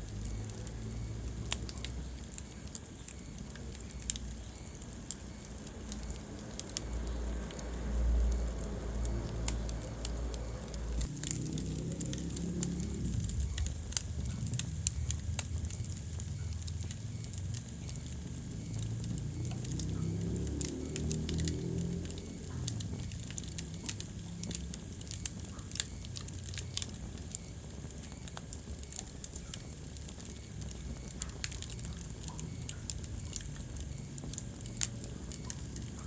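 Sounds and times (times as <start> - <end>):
fire crackling and popping: 0.0 - 36.0
low rumble of flames: 0.0 - 36.0.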